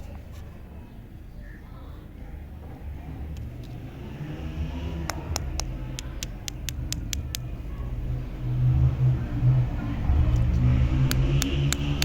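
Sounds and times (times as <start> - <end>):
low engine-like rumble: 0.0 - 12.0
sharp clicks: 5.1 - 7.5.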